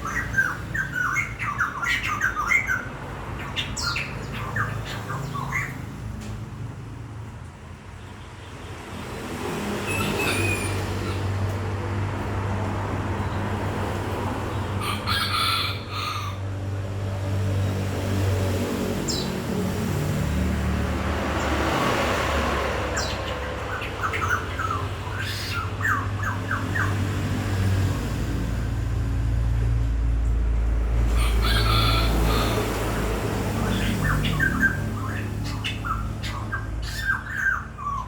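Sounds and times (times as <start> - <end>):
birds calling: 0.0 - 6.2, 9.4 - 12.2, 12.8 - 16.5, 17.6 - 28.1, 30.8 - 38.0.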